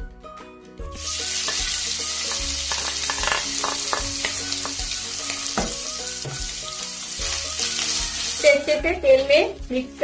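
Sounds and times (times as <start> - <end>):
chicken sizzling in oil: 0.9 - 9.7
spatula tapping and scraping: 1.4 - 4.9.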